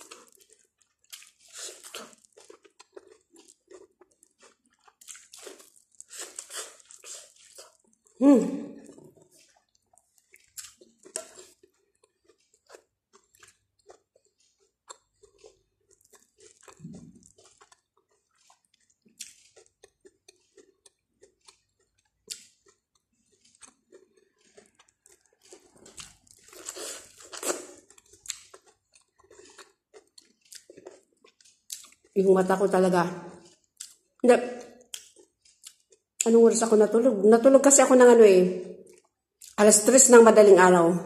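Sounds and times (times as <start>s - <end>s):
corn kernels crunching: 0.0s - 8.2s, 8.9s - 32.2s.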